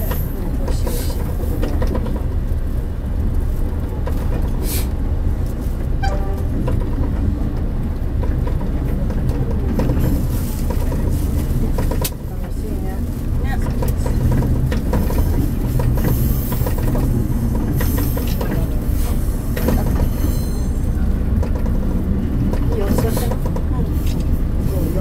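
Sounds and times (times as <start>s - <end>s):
railcar engine rumble: 0.0s - 25.0s
wheels clicking on rails: 6.6s - 25.0s.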